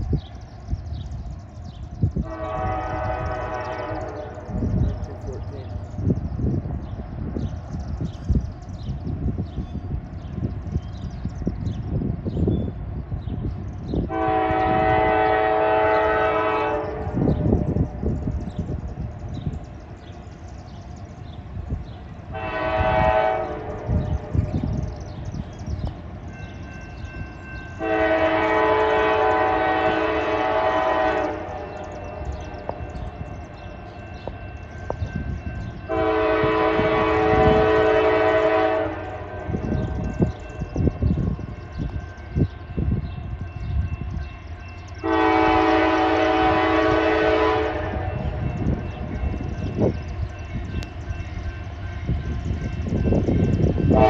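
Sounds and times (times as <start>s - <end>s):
train rumbling and clicking: 0.0s - 54.0s
locomotive air horn: 2.2s - 4.6s, 14.1s - 17.7s, 22.3s - 24.2s, 27.8s - 32.7s, 35.9s - 40.0s, 45.0s - 49.1s.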